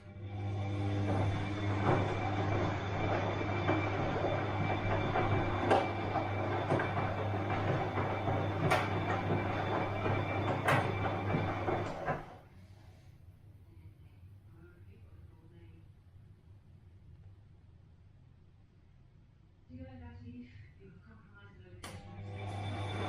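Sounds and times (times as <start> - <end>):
washing machine running: 0.0 - 12.4, 21.9 - 23.0.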